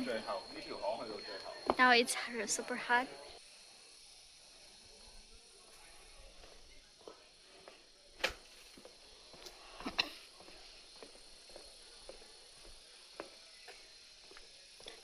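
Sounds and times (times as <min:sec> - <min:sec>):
insects buzzing: 0:00.0 - 0:15.0
footsteps: 0:01.6 - 0:02.2.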